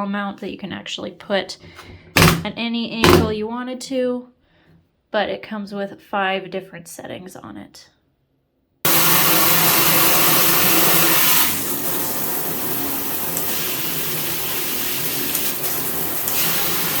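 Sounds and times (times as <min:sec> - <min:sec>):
shower head spraying water: 0:08.9 - 0:17.0.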